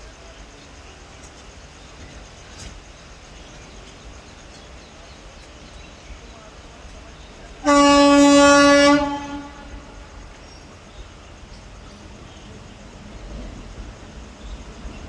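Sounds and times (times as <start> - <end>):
faint steady rumble: 0.0 - 15.0
locomotive horn blast: 7.6 - 10.7.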